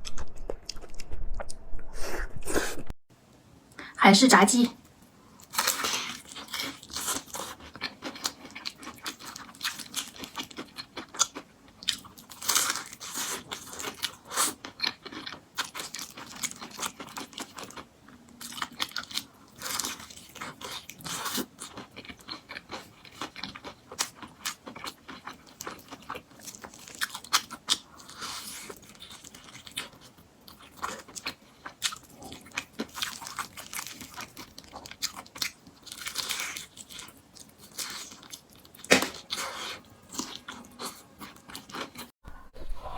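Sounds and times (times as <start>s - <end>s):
crunchy fried chicken chewing: 5.4s - 42.1s.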